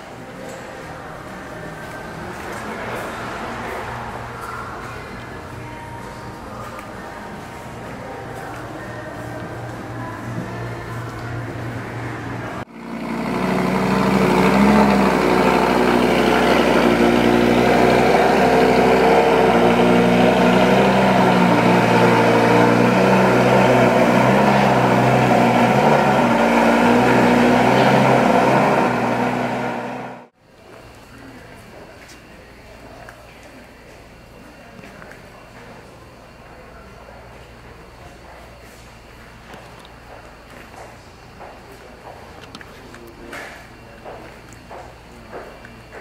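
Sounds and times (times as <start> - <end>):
loud sports car engine: 1.9 - 5.4, 10.2 - 30.4.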